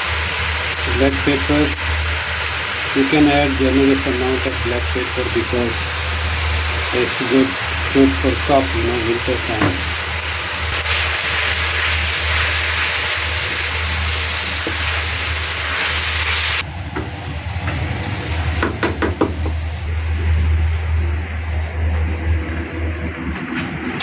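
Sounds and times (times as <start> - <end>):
vegetables sizzling in a pan: 0.0 - 20.6
steady low hum: 16.6 - 24.0
utensils knocking against pan: 18.6 - 19.6.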